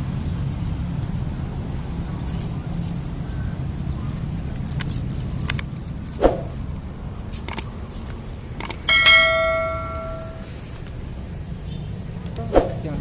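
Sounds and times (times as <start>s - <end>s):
distant traffic hum: 0.0s - 13.0s
small metal bell ringing: 8.9s - 10.5s.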